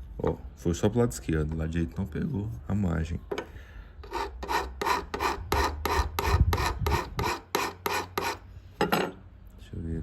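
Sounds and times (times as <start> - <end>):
hand file rasping on steel: 4.0 - 8.5.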